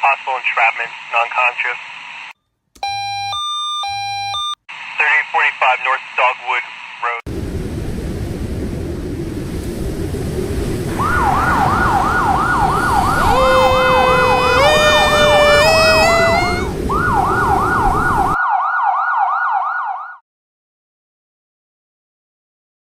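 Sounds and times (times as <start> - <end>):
emergency siren yelping: 2.8 - 4.6, 10.9 - 20.2
second siren tone climbing: 2.8 - 4.6, 10.9 - 20.2.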